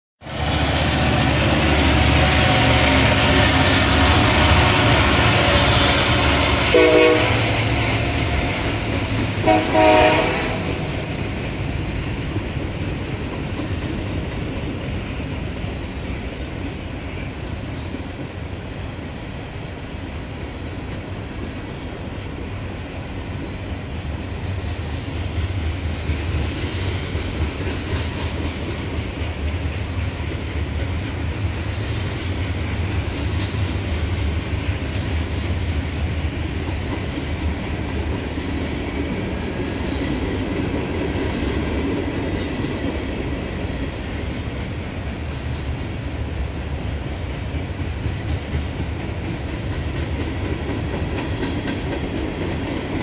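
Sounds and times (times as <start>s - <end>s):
train horn blasts: 0.2s - 10.9s
diesel locomotive engine: 0.2s - 53.0s
rumble of train wheels: 0.2s - 53.0s
clickety-clack over rail joints: 0.3s - 53.0s.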